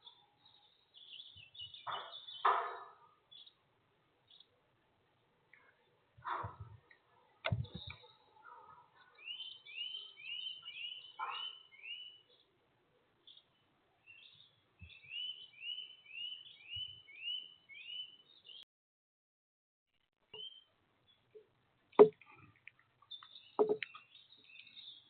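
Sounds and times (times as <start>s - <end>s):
faint knocks: 23.6s - 23.8s.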